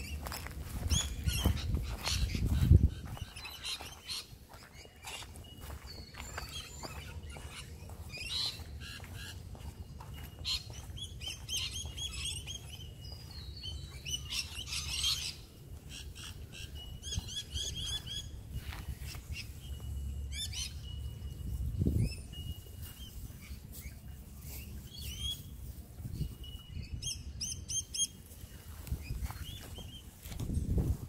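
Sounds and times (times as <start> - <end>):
steady low rumble: 0.0 - 3.5
wild birds chirping and calling: 0.0 - 30.3.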